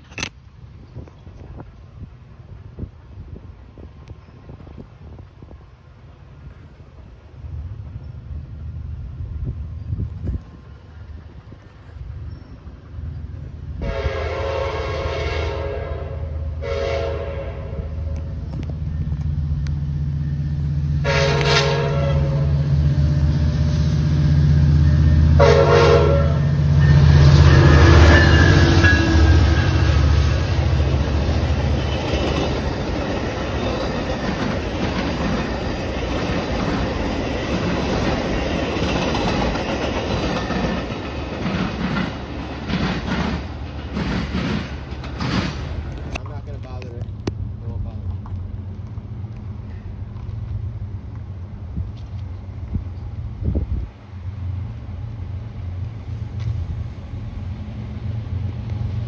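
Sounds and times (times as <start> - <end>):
diesel locomotive engine drone: 0.0 - 59.0
train air horn blasts: 13.8 - 18.2, 21.0 - 23.2, 25.2 - 30.4
train cars clickety-clack on rails: 23.0 - 52.9.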